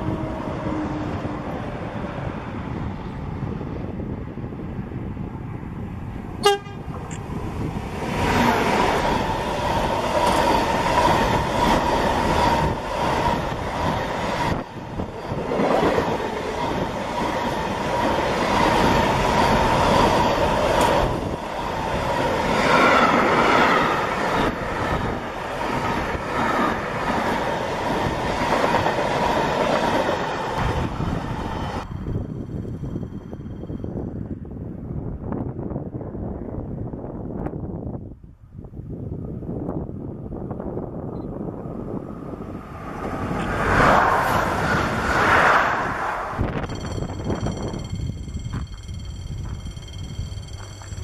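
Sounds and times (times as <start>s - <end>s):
wheels rushing on rail: 0.0s - 38.0s, 38.7s - 51.0s
high wheel whine: 45.8s - 51.0s.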